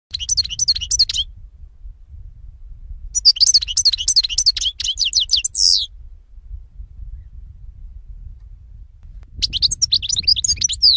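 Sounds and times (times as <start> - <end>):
songbird high chirps: 0.1 - 1.4, 3.0 - 6.0, 9.2 - 10.9.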